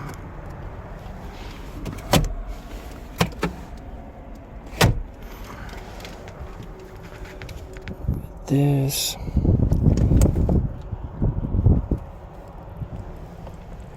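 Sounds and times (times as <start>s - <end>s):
clicks and knocks in truck cab: 4.7s - 5.2s.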